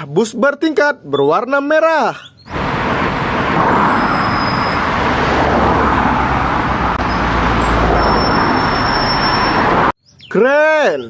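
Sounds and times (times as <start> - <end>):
motor vehicle running: 2.5 - 9.9.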